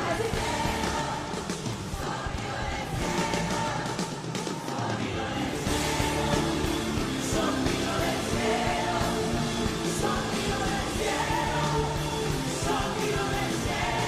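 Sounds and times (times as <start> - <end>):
drums: 0.0 - 14.0
guitars: 5.2 - 14.0.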